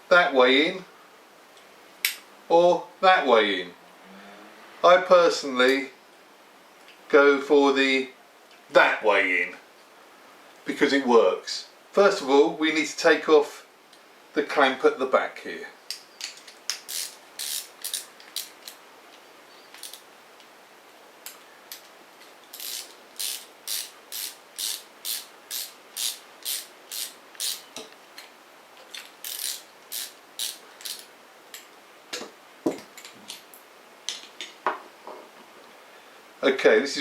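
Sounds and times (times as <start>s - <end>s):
hand tool ratcheting clicks: 16.2s - 18.8s, 22.5s - 27.7s, 28.9s - 31.1s.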